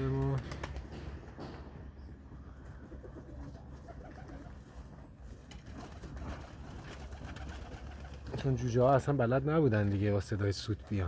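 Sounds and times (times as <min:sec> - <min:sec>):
pigeons cooing: 0:02.3 - 0:05.1.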